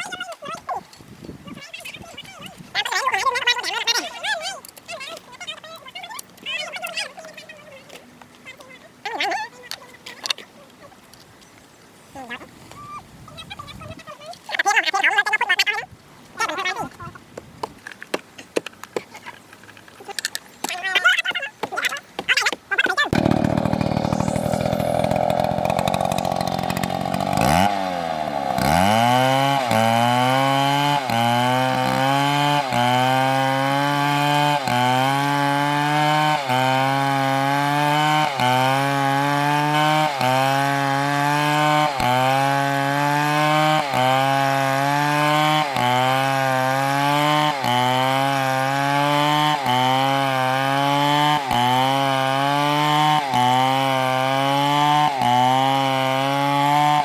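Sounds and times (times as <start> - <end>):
chainsaw cutting wood: 17.4 - 57.0.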